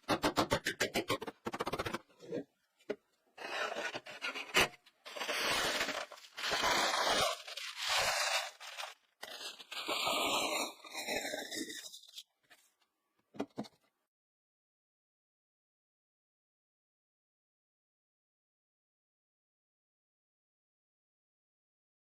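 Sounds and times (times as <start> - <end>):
rough scraping strokes: 3.4 - 12.2.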